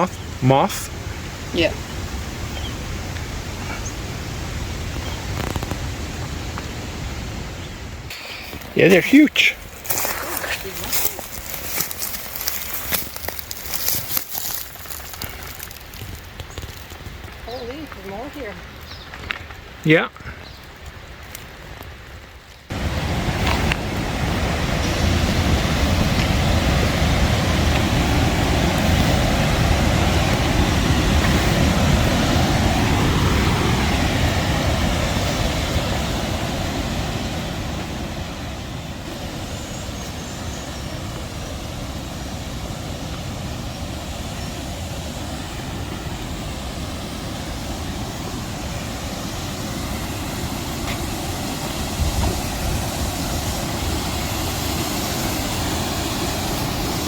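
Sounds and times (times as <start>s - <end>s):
river water rushing: 0.0s - 15.1s, 22.7s - 57.0s.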